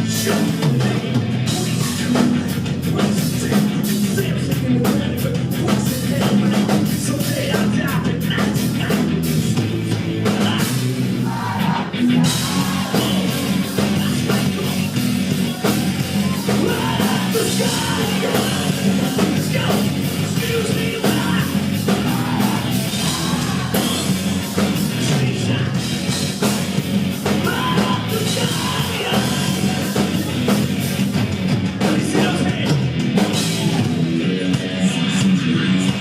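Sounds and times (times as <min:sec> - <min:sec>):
rock band playing: 0:00.0 - 0:36.0
shouted vocals: 0:10.3 - 0:25.9, 0:27.4 - 0:30.8, 0:31.8 - 0:36.0.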